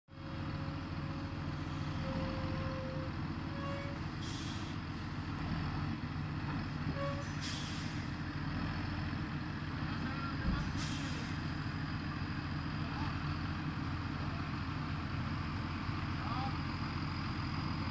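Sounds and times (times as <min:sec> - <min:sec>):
tractor diesel engine running: 0:00.1 - 0:17.9
short hisses: 0:04.2 - 0:04.8, 0:07.2 - 0:08.2, 0:10.6 - 0:11.4.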